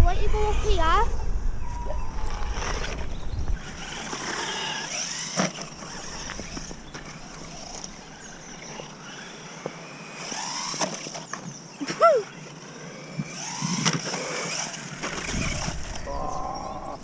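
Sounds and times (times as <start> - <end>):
tyres running over track: 1.7 - 11.6
toy truck electric motor whining: 2.2 - 17.0.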